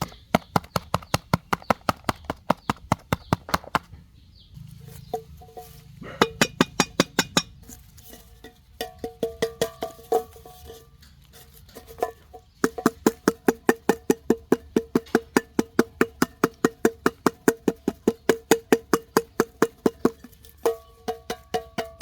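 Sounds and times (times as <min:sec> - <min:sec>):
ringing knocks on hard object: 0:06.2 - 0:07.6.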